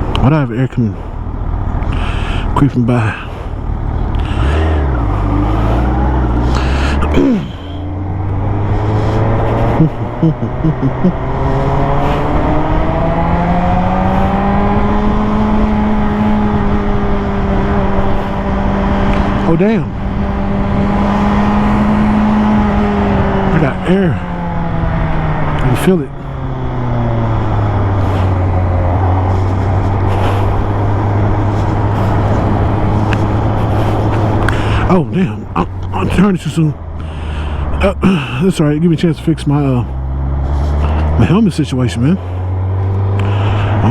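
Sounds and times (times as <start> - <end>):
motorcycle engine pulling: 1.0 - 43.9
wind rush on microphone: 3.2 - 37.7.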